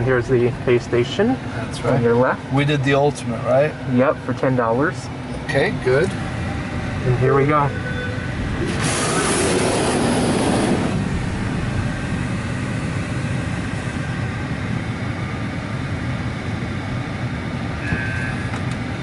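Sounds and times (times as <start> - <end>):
car wash rumbling: 0.0 - 16.8
car wash hissing: 6.3 - 14.2.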